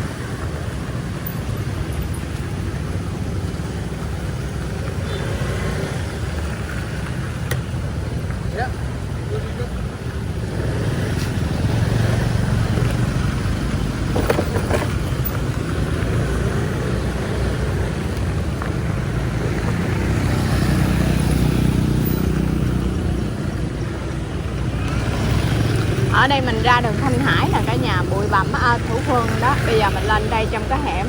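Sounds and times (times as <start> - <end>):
motorbike and car engines passing: 0.0 - 31.0.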